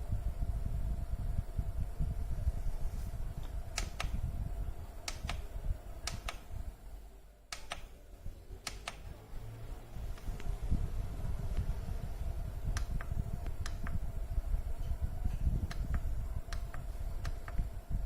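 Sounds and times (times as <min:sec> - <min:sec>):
humidifier fan humming: 0:00.0 - 0:18.0
low rumble: 0:00.0 - 0:18.0
sharp clicks: 0:03.7 - 0:04.2, 0:05.0 - 0:05.4, 0:06.0 - 0:06.5, 0:07.5 - 0:07.9, 0:08.6 - 0:09.1, 0:15.6 - 0:17.6.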